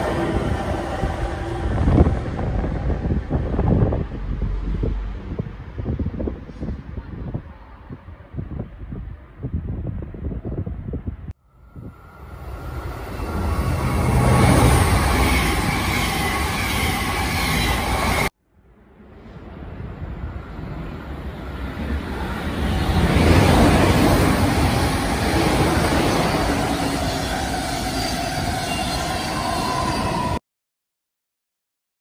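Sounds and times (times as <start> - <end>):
train rushing past: 0.0 - 7.2, 11.5 - 18.3, 18.9 - 30.4
train wheel-on-rail noise: 0.0 - 30.4.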